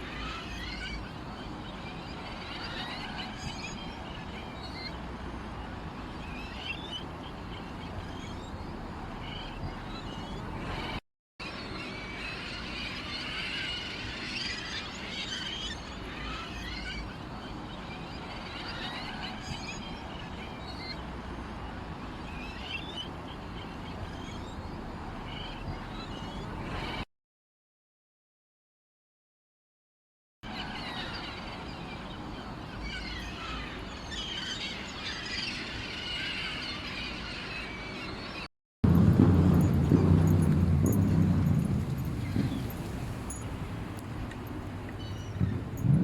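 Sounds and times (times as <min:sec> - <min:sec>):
small songbirds chirping: 0:39.0 - 0:46.0.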